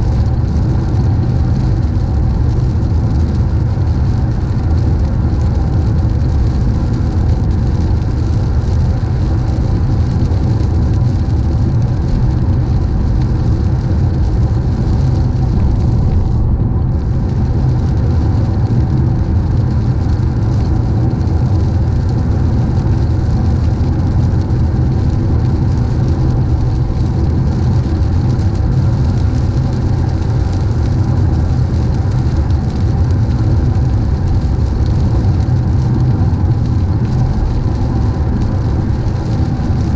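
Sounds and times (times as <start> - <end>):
hiss of spray and rain: 0.0 - 39.9.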